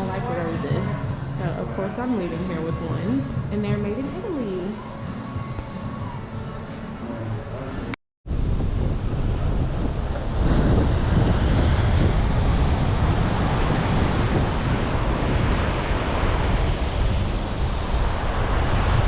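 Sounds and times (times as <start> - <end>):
wind buffeting microphone: 0.0 - 4.4, 8.3 - 19.0.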